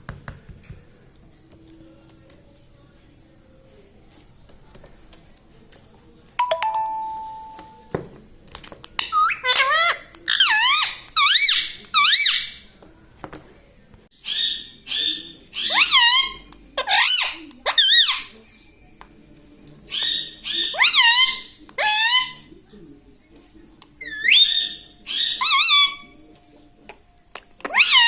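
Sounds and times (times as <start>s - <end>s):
ringing tone: 6.4s - 7.9s
parakeet calling: 9.0s - 12.6s, 14.2s - 18.4s, 19.9s - 22.6s, 24.0s - 26.2s, 27.6s - 28.0s.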